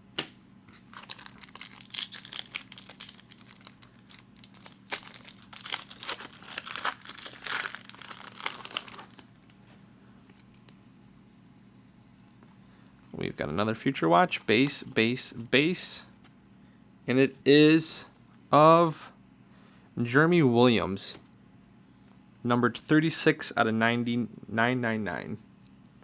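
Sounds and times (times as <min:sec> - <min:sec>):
foil wrapper tearing and crinkling: 0:00.8 - 0:09.6.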